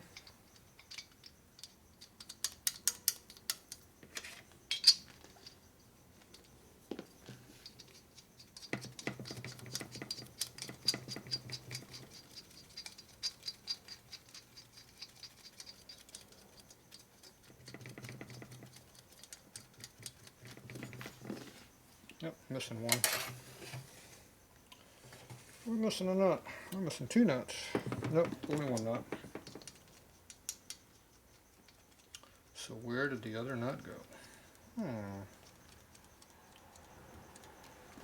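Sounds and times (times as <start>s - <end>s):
metal parts clicking and clattering: 0.1s - 5.6s, 7.6s - 21.5s, 27.5s - 32.2s.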